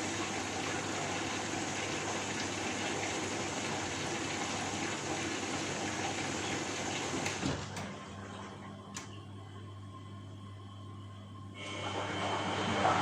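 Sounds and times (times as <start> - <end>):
low steady hum: 7.6 - 13.0.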